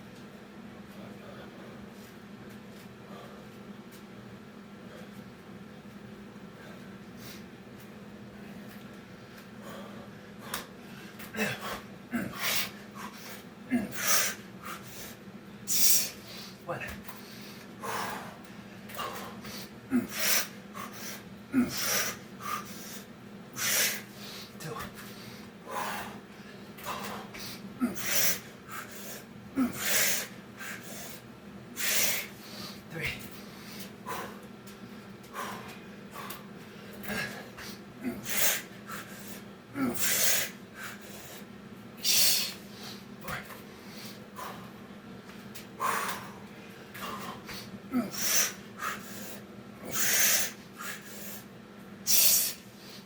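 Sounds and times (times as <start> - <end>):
man breathing hard: 3.0 - 3.6, 9.2 - 44.9, 45.8 - 53.0
man grunting: 11.3 - 12.5, 13.7 - 14.0, 16.6 - 17.0, 19.9 - 20.2, 21.5 - 22.1, 24.6 - 25.0, 26.9 - 28.4, 29.5 - 30.2, 32.9 - 33.3, 37.0 - 38.5, 39.7 - 40.3, 47.0 - 48.3.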